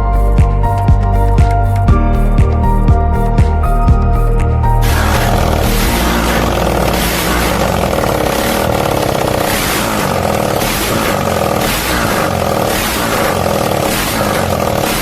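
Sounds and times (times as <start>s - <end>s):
motorcycle engine running loud: 4.8s - 15.0s.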